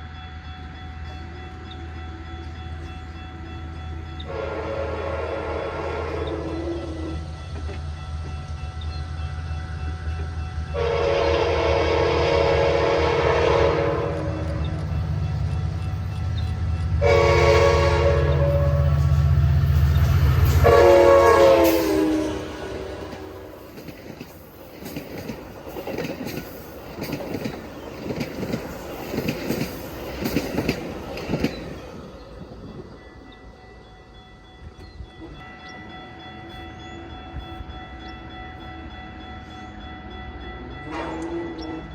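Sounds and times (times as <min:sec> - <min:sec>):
diesel locomotive rumbling: 0:00.0 - 0:41.9
train air horn blast: 0:04.3 - 0:07.2, 0:10.7 - 0:14.4, 0:17.0 - 0:19.3, 0:20.4 - 0:23.6, 0:40.9 - 0:41.9
wheels clacking over rail joints: 0:21.4 - 0:33.4.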